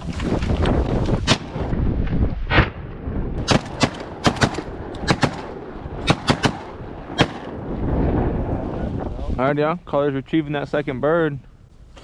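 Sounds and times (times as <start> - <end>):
shotgun shots: 3.4 - 7.6.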